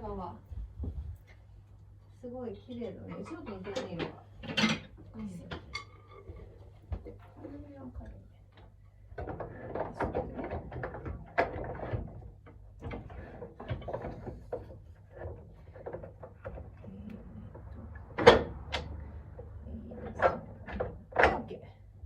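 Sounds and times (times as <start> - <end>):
frame parts clattering: 3.2 - 7.4.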